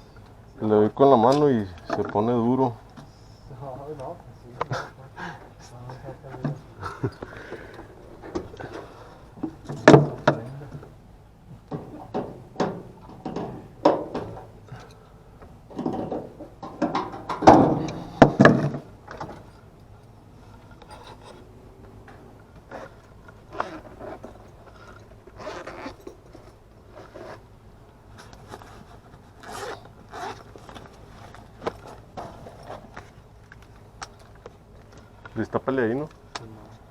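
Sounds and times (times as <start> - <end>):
scraping and rubbing of metal parts: 20.4 - 21.5.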